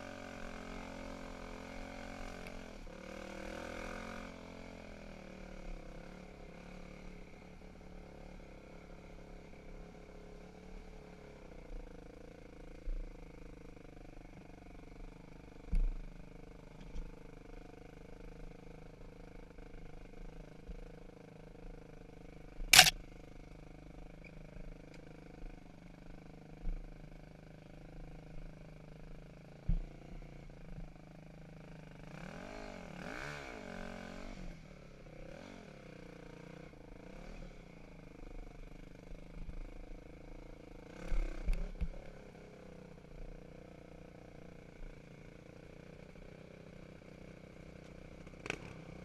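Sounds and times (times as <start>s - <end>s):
dirt bike engine at low revs: 0.0s - 49.0s
light clicks: 22.7s - 23.0s.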